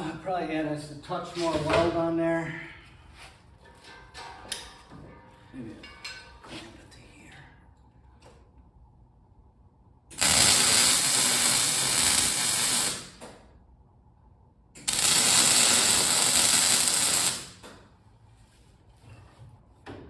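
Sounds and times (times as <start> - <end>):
arc welder crackling hiss: 10.1 - 13.3, 14.8 - 17.7.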